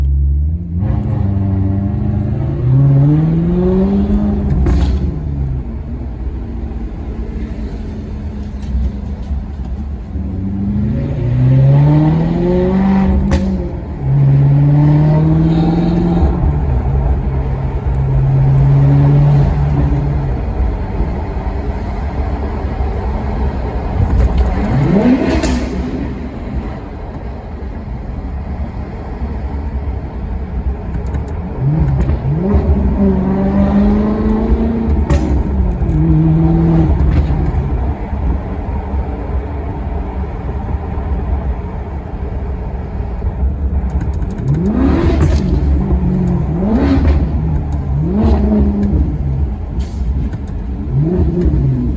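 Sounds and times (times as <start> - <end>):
car engine accelerating: 0.0 - 51.9.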